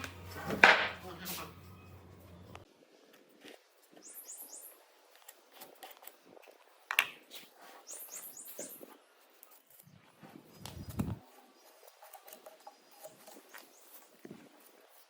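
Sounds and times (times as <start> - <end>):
small bird chirping: 3.9 - 5.4, 7.7 - 15.0.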